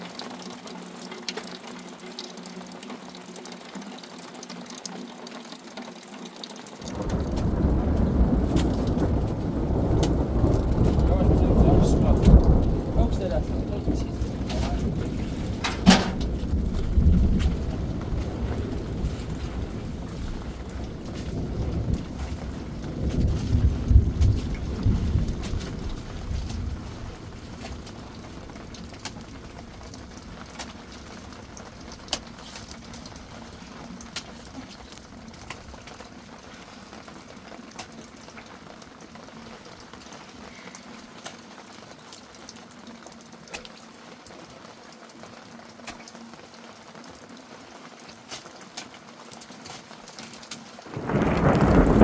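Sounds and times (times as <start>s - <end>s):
steady rain: 0.0s - 52.0s
sharp drip ticks: 0.1s - 16.6s, 20.6s - 36.2s
thunder rumble: 6.8s - 36.0s, 50.9s - 52.0s.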